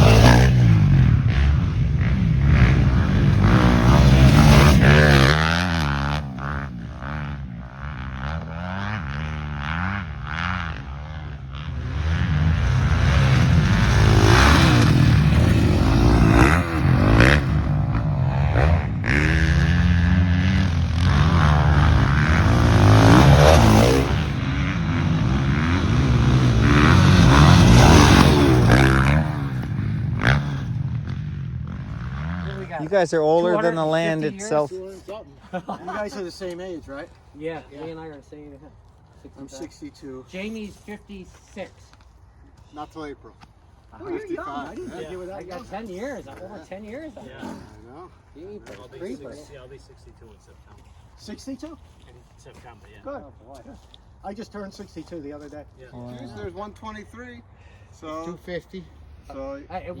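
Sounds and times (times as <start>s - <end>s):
dirt bike engines revving: 0.0s - 60.0s.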